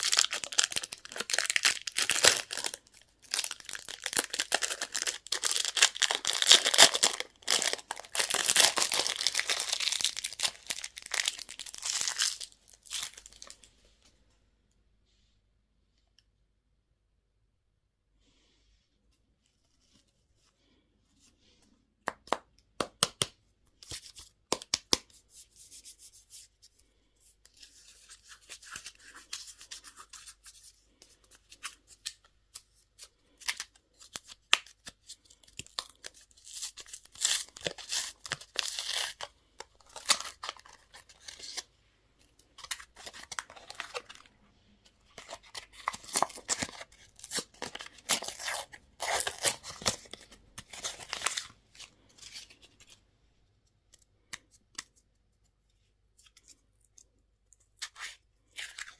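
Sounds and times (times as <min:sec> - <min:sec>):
plastic wrappers crackling: 0:00.0 - 0:13.6.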